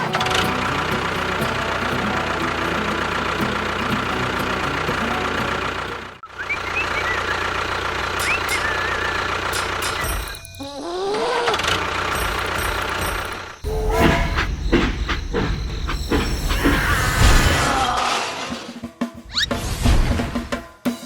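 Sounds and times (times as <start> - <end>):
small engine running with knock: 0.0 - 6.2, 7.0 - 10.6, 11.5 - 17.2.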